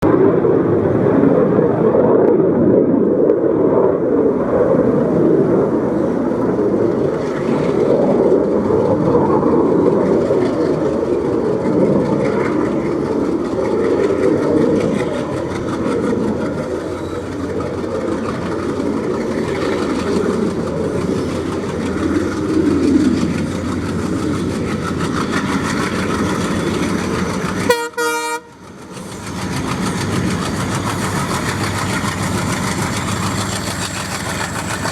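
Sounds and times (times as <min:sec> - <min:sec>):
diesel train rumbling by: 0:04.2 - 0:34.9.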